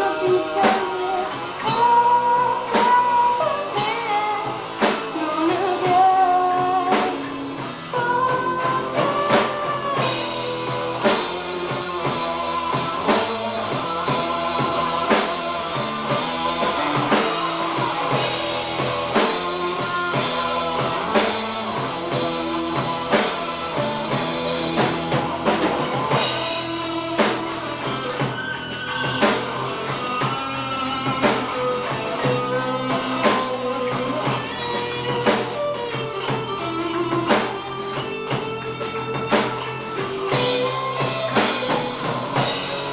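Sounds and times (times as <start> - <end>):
person singing: 0.0 - 28.3
drum kit beat: 0.0 - 42.9
guitars: 0.0 - 42.9.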